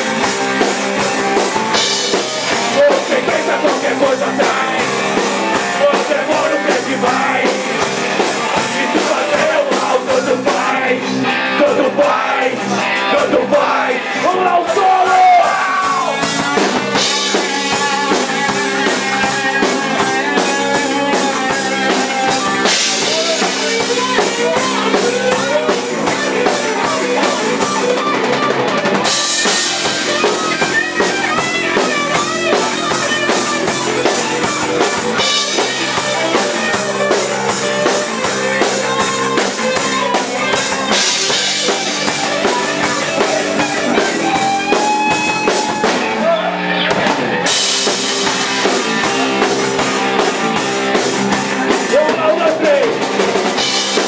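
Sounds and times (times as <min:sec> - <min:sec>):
bass guitar: 0:00.0 - 0:54.0
drum kit: 0:00.0 - 0:54.0
lead guitar solo: 0:15.5 - 0:50.6.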